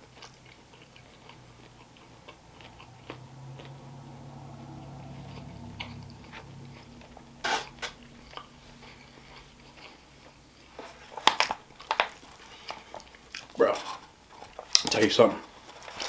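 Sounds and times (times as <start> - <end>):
person chewing food: 0.0 - 16.0
plastic fork scraping foil tray: 7.4 - 8.0.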